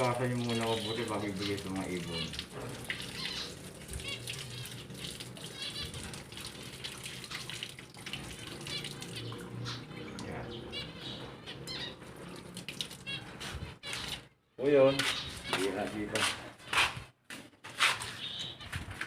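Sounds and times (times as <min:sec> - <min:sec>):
finches chirping: 0:00.0 - 0:06.2, 0:08.5 - 0:12.2, 0:13.0 - 0:16.8, 0:18.1 - 0:18.8.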